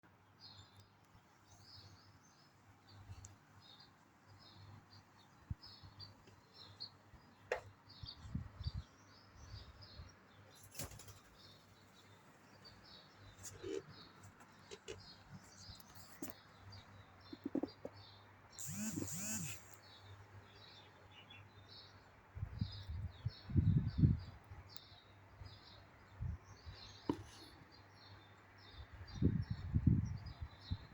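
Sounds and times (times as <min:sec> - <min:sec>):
small birds chirping: 0:00.1 - 0:30.9
sharp clicks: 0:18.6 - 0:19.9.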